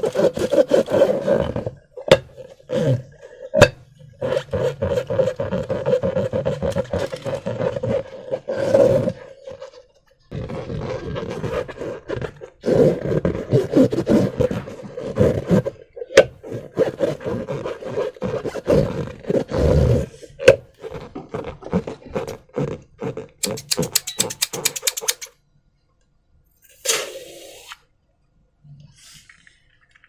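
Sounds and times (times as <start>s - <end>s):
sticky clicks: 23.4s - 25.3s.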